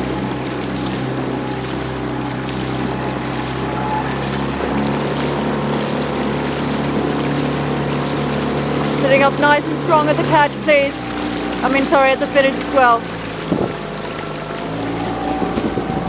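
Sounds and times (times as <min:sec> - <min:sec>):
outboard motor running: 0:00.0 - 0:16.0
water noise: 0:00.0 - 0:16.0
wind noise: 0:13.3 - 0:13.9, 0:14.8 - 0:16.0.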